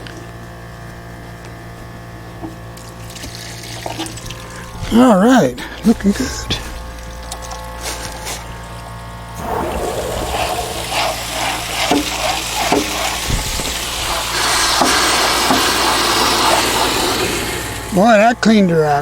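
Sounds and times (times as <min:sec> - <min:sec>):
water gushing and gurgling from drain: 0:02.8 - 0:07.4, 0:09.3 - 0:18.2.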